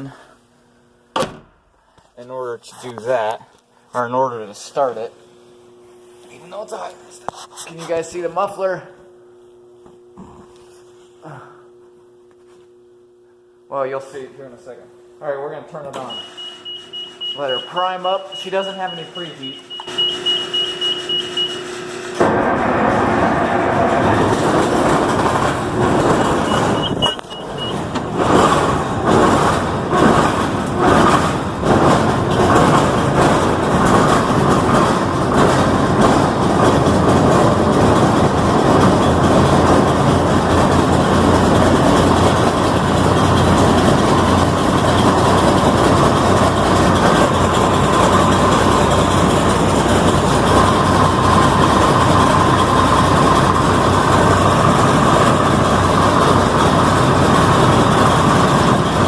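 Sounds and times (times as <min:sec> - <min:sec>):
engine starting and running: 0:15.9 - 0:59.0
short beep: 0:16.1 - 0:21.6, 0:26.5 - 0:27.8.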